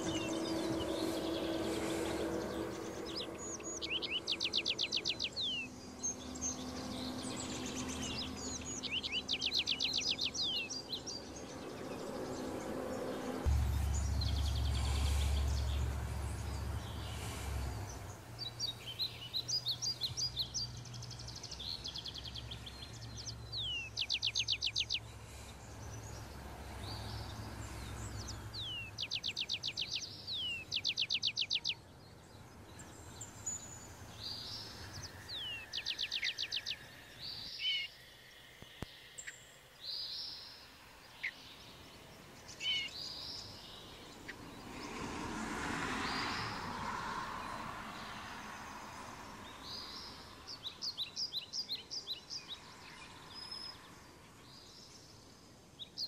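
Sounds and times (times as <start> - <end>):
birds singing trills and chirps: 0.0 - 56.0
steady low hum: 12.0 - 19.3.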